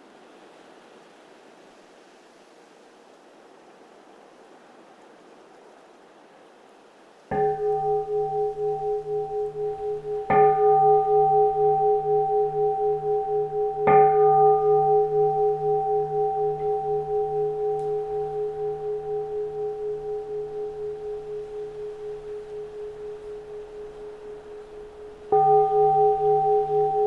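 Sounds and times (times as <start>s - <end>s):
bowl bell ringing: 7.3s - 27.0s.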